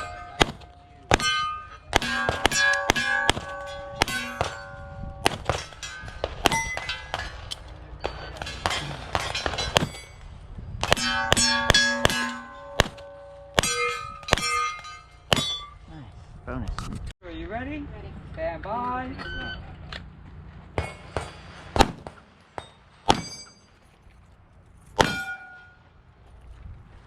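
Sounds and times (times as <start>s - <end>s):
pistol shots: 0.0s - 7.4s, 25.0s - 25.2s
steel plates ringing: 0.0s - 15.9s, 22.5s - 23.8s, 25.0s - 25.9s.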